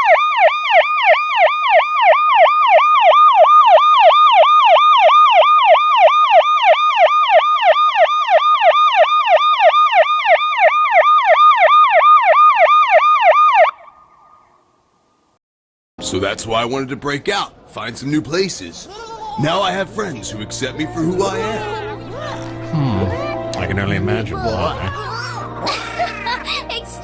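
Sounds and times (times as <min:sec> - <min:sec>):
ambulance siren yelping: 0:00.0 - 0:14.6.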